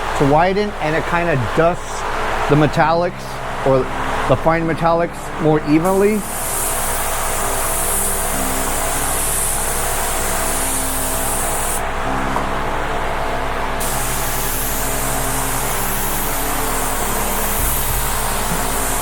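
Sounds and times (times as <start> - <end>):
paint spray gun hissing: 5.1 - 12.0, 13.8 - 19.0.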